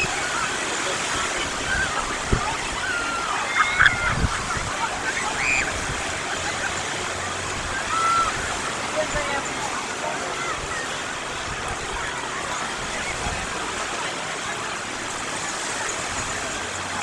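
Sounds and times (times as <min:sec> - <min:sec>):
sea surf on beach: 0:00.0 - 0:17.0
distant people shouting: 0:01.5 - 0:06.5, 0:07.6 - 0:08.8.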